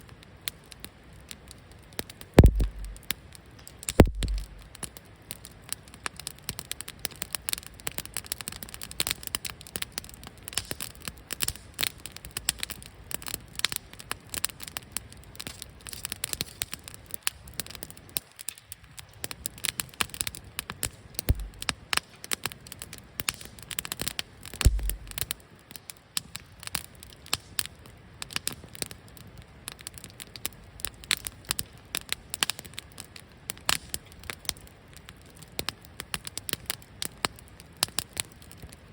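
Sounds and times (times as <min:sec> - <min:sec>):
wood fire crackling and popping: 0:00.0 - 0:38.9
dull low thuds: 0:02.4 - 0:03.0, 0:04.0 - 0:04.6, 0:21.3 - 0:21.6, 0:24.7 - 0:25.2.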